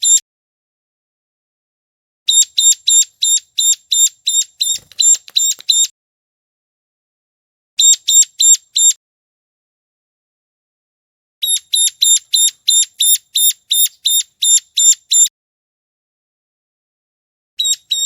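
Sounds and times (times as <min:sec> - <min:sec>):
small bird sharp high calls: 0:00.0 - 0:00.2, 0:02.3 - 0:05.9, 0:07.8 - 0:09.0, 0:11.4 - 0:15.3, 0:17.6 - 0:18.0.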